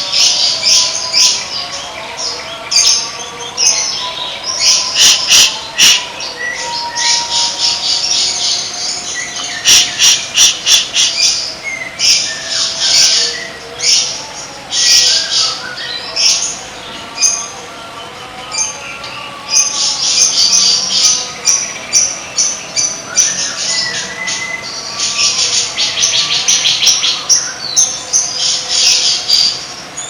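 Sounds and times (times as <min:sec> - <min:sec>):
songbird harsh rasping calls: 0:02.3 - 0:17.5.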